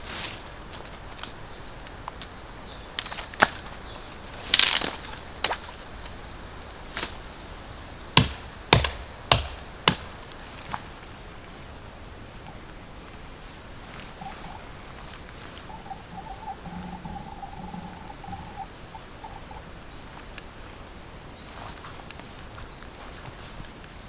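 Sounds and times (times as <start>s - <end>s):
chopping wood: 3.0s - 3.8s, 4.5s - 5.8s, 6.9s - 7.2s, 8.1s - 10.4s.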